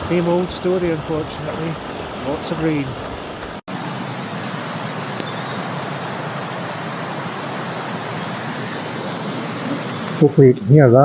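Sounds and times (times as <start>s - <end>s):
water rushing over waterfalls: 0.0s - 3.7s.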